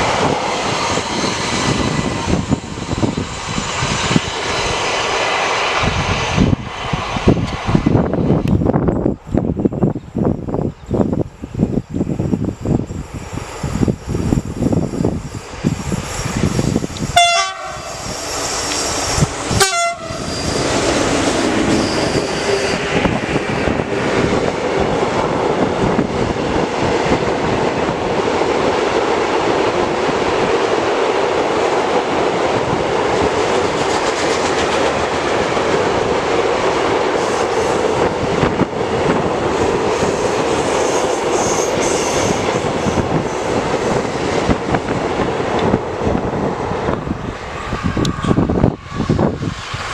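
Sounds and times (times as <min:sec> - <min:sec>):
train passing with wheel rumble: 0:00.0 - 0:49.9
train horn blasts: 0:17.2 - 0:18.1, 0:19.5 - 0:20.3.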